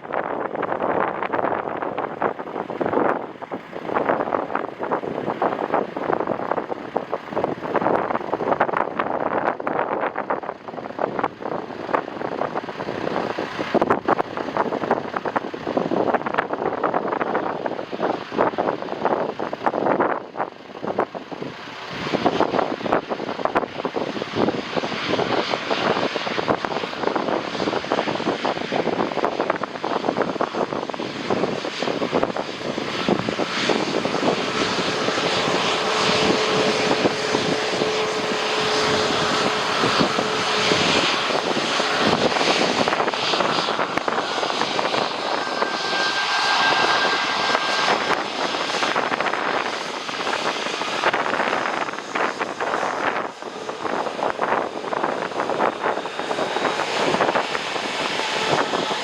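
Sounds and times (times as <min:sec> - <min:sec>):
jet airliner passing overhead: 0:00.0 - 0:59.0
wind buffeting microphone: 0:00.0 - 0:59.0.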